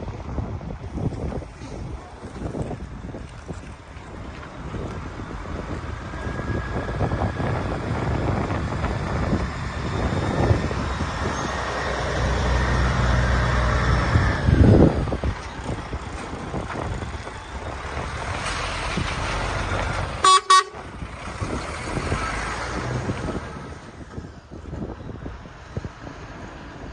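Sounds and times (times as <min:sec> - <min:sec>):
diesel truck engine rumble: 0:00.0 - 0:26.9
truck horn toots: 0:20.2 - 0:20.9.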